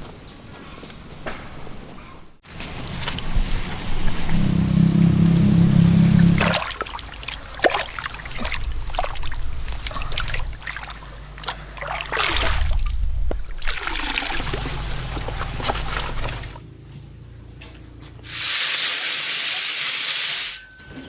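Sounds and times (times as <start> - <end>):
water trickling and splashing: 5.4 - 16.6.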